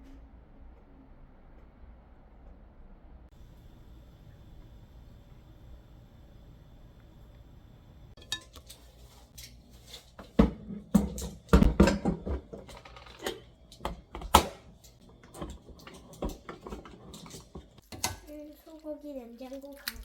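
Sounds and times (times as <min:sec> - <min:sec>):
objects clattering: 0:08.2 - 0:18.3
household objects clicking and knocking: 0:10.1 - 0:18.3.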